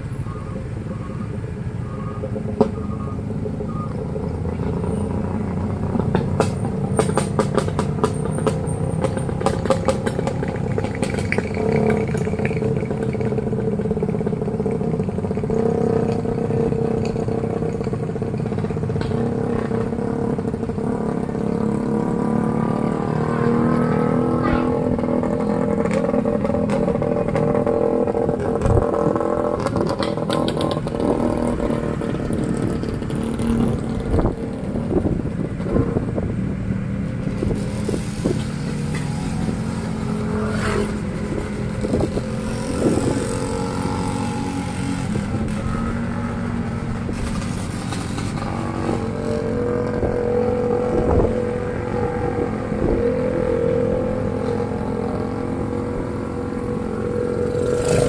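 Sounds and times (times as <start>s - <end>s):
motorcycle engine running: 0.0s - 58.0s
knocks and rattles: 5.9s - 13.4s.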